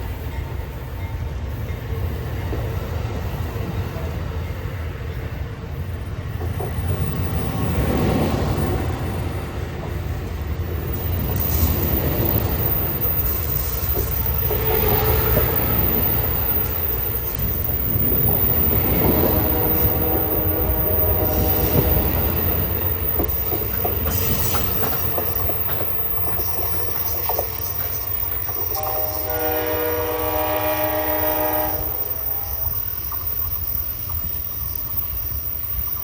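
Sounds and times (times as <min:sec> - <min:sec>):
train rumbling past: 0:00.0 - 0:36.0
wheels clicking on rails: 0:00.0 - 0:36.0
train horn chord: 0:19.1 - 0:22.2, 0:28.7 - 0:32.8.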